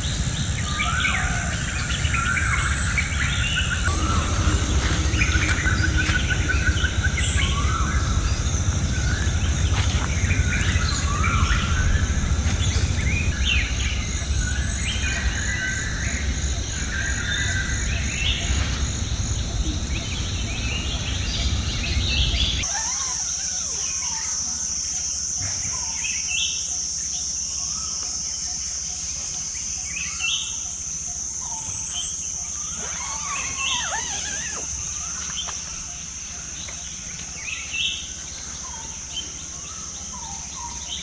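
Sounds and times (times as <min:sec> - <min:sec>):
birds singing and chirping: 0:00.0 - 0:41.0
low rumble: 0:01.6 - 0:22.6
high insect buzz: 0:03.9 - 0:14.3, 0:32.2 - 0:39.7.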